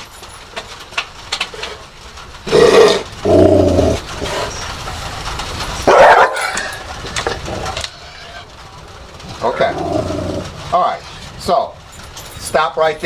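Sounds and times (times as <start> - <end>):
dog barking aggressively: 5.8 - 7.7.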